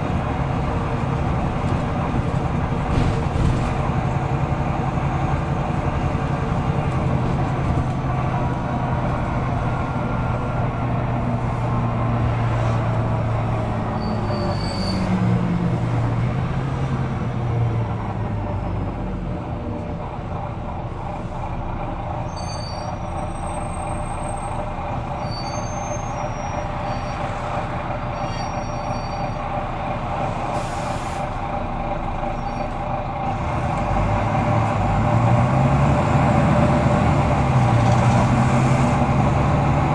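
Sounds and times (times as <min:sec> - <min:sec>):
bus diesel engine running: 0:00.0 - 0:39.9
short high squeaks: 0:13.9 - 0:15.1, 0:22.2 - 0:24.6, 0:25.2 - 0:27.4, 0:28.1 - 0:29.5, 0:32.3 - 0:32.8.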